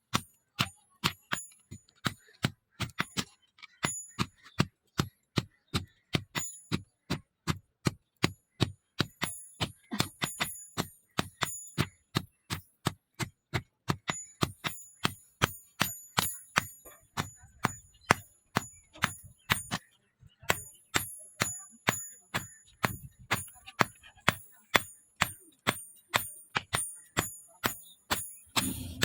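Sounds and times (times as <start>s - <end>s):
hammer striking steel on anvil: 20.6s - 29.0s.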